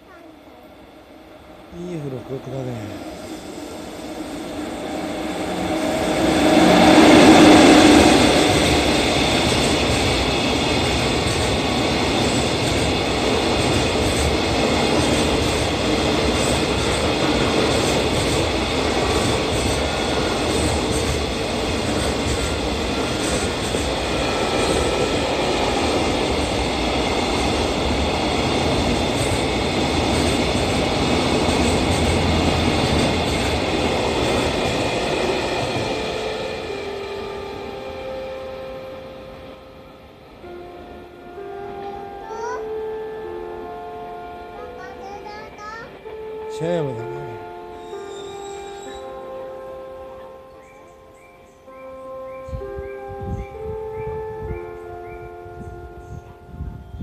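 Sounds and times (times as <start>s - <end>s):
electric locomotive passing: 0.0s - 57.0s.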